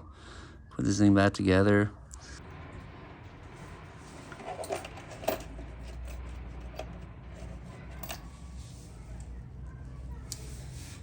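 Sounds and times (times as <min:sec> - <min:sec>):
low hum: 0:02.0 - 0:10.3
metal parts and tools clinking: 0:04.0 - 0:08.6.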